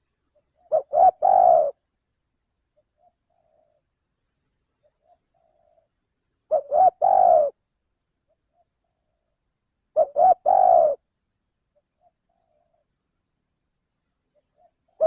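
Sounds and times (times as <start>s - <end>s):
dove cooing: 0.0s - 1.8s, 2.8s - 3.9s, 4.8s - 5.9s, 6.5s - 7.6s, 8.3s - 11.1s, 11.8s - 12.9s, 14.4s - 15.0s.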